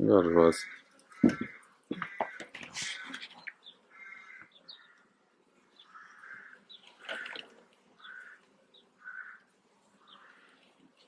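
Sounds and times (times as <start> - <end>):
birds chirping: 0.0 - 11.0
single knock: 1.2 - 2.4.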